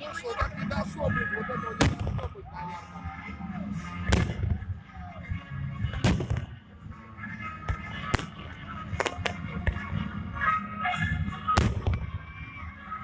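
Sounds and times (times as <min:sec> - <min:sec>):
music: 0:00.0 - 0:13.0
fireworks bangs: 0:01.7 - 0:02.4, 0:04.1 - 0:04.6, 0:05.9 - 0:06.5, 0:11.5 - 0:12.2.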